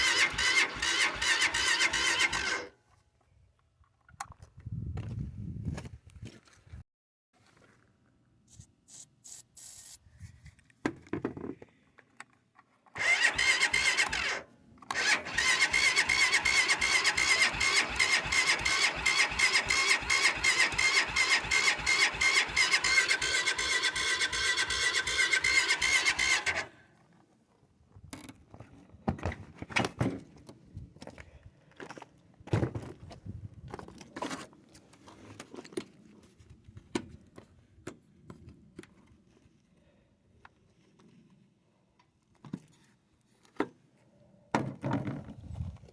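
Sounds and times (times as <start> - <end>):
car starter motor cranking: 0.0 - 2.7, 13.0 - 26.7.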